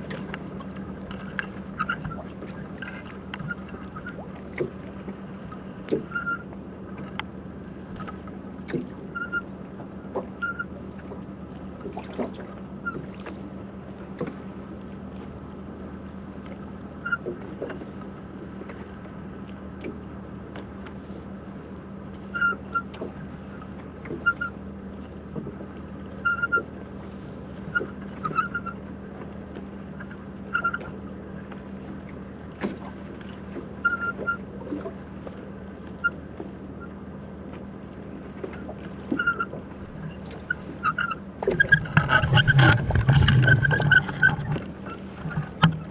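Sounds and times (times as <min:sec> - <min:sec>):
low underwater hum: 0:00.0 - 0:45.9
high tonal blips: 0:39.2 - 0:45.9
clicks and crackles: 0:41.0 - 0:45.9.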